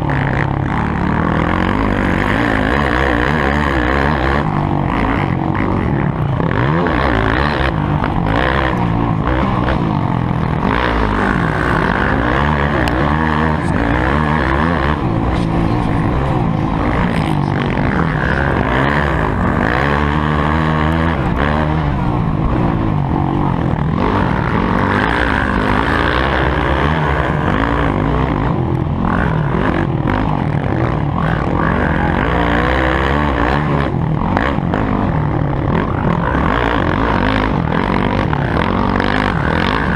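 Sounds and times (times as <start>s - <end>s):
motocross engine revving: 0.0s - 39.9s.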